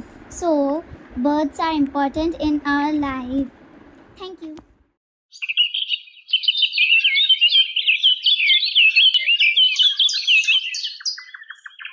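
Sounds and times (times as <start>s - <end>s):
small birds chirping: 5.3s - 11.9s.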